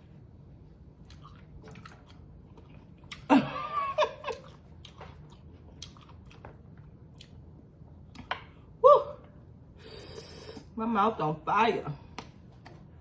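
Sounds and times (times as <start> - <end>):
chewing food: 1.0 - 3.3, 4.2 - 8.3.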